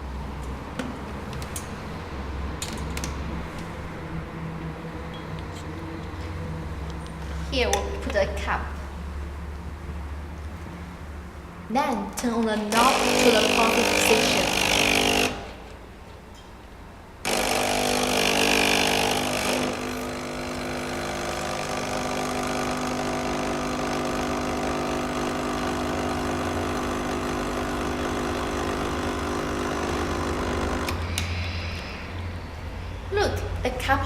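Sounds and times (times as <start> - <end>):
coffee maker pump humming: 12.7 - 15.6, 17.3 - 32.0.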